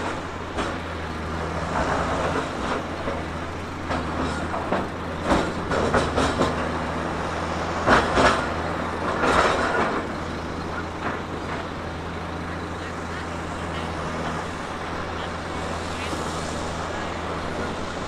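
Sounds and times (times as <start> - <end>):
diesel engine running: 0.0 - 18.0
metal clanks and knocks: 3.9 - 7.0.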